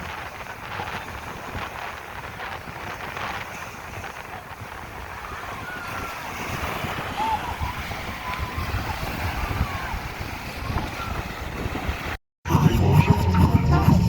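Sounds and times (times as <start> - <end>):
wind buffeting microphone: 0.0 - 12.2
beach surf: 0.0 - 14.0
music: 12.5 - 14.0.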